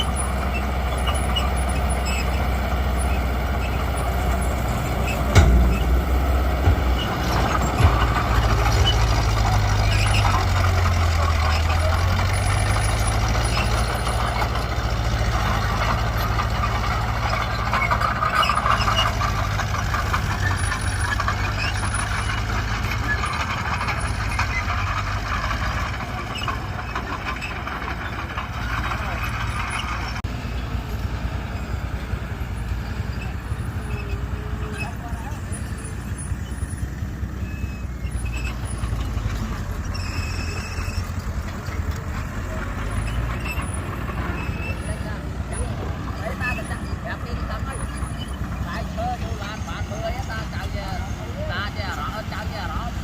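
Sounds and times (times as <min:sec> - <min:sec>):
diesel machinery running: 0:00.0 - 0:53.0
sharp metallic clank: 0:05.0 - 0:10.4.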